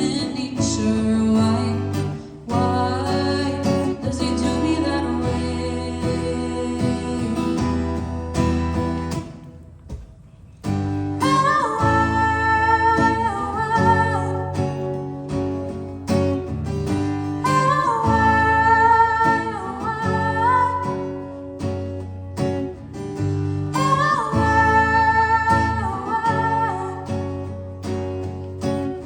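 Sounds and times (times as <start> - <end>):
woman singing: 0.0 - 8.1, 11.1 - 15.5, 17.4 - 21.4, 23.7 - 27.5
acoustic guitar: 0.0 - 29.0.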